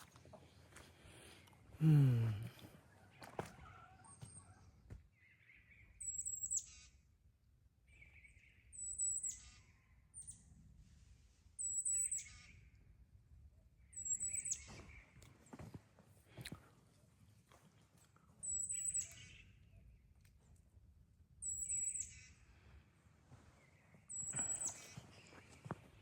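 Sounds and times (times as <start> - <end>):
songbird chirping and trilling: 3.0 - 7.2, 7.9 - 10.6, 11.6 - 12.9, 13.8 - 15.8, 18.3 - 20.2, 21.4 - 22.7, 23.3 - 26.0.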